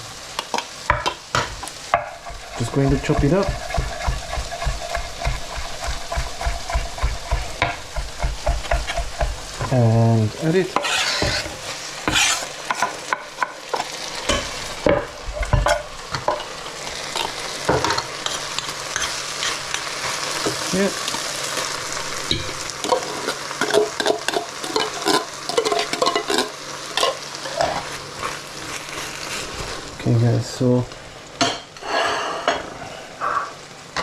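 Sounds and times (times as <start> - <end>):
food sizzling in a pot: 0.0 - 34.0
utensil scraping and knocking pan: 0.9 - 9.7, 10.7 - 13.0.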